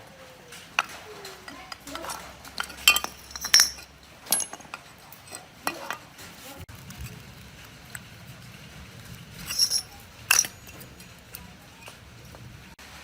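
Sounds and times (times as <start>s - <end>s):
metal parts clinking: 0.5s - 6.5s, 9.4s - 12.2s.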